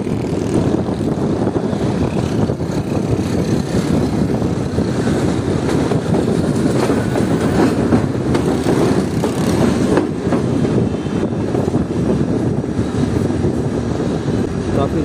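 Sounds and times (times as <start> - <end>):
train wheels rumbling on rails: 0.0 - 15.0
rail joint clicks: 2.2 - 10.8.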